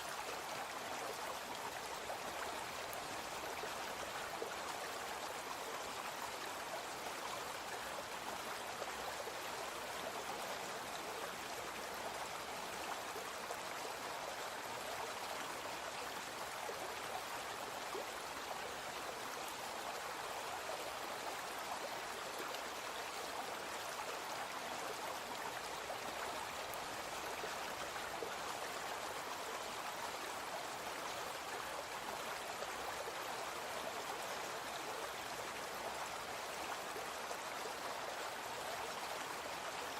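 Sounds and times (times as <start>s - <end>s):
brook water rushing and gurgling: 0.0s - 39.9s.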